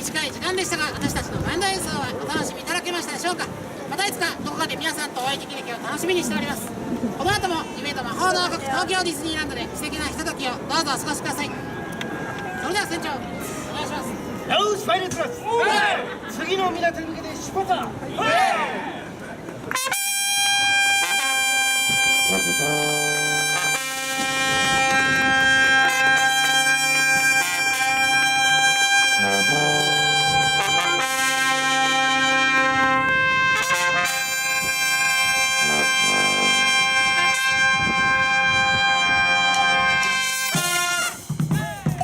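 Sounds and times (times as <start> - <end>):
brass band playing: 19.7 - 42.0.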